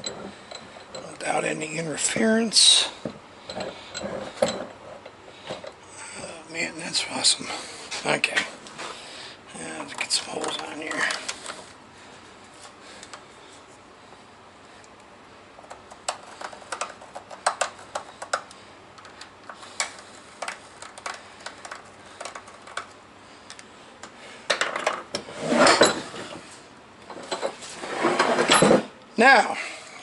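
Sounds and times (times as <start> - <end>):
metal tools clinking: 0.0 - 2.8.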